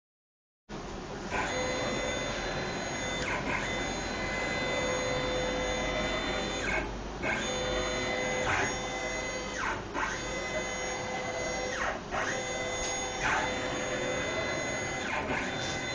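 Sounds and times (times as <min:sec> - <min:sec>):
stepper motors whining: 0:01.3 - 0:15.9.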